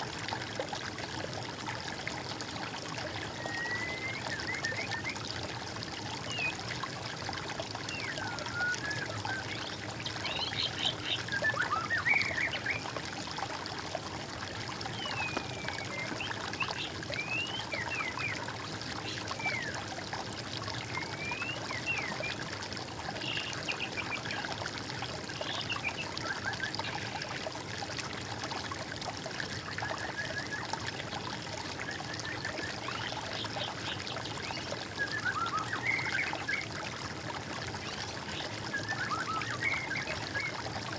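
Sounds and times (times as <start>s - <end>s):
running water: 0.0s - 40.9s
birds singing: 31.9s - 36.8s, 37.8s - 40.6s.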